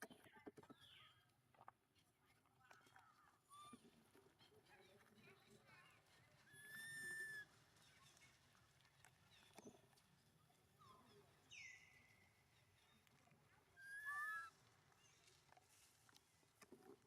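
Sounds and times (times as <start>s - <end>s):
baby monkey crying: 13.8s - 14.5s.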